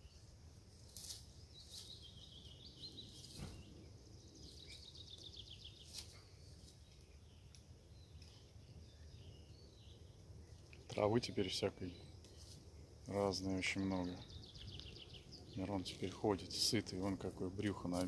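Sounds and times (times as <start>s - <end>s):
songbird trilling: 13.1s - 18.0s.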